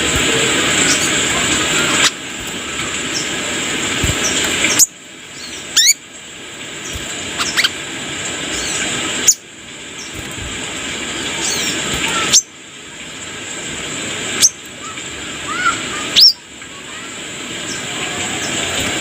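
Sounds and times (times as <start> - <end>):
steady hiss: 0.0 - 19.0
songbird squeaky chirps: 4.2 - 6.0, 6.8 - 7.8.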